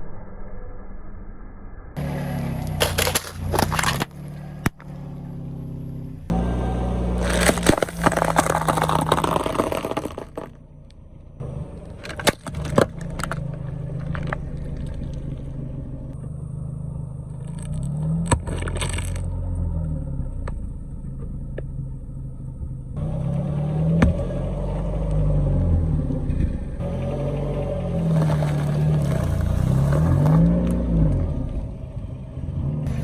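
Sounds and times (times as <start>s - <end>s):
tyres crushing objects: 2.0s - 5.0s, 7.1s - 10.6s, 11.8s - 15.2s, 17.5s - 19.3s, 23.9s - 24.3s, 28.0s - 30.6s
car engine running slowly: 2.0s - 33.0s
sharp cracks and pops: 2.6s - 5.0s, 7.2s - 11.0s, 11.8s - 15.3s, 17.4s - 19.3s.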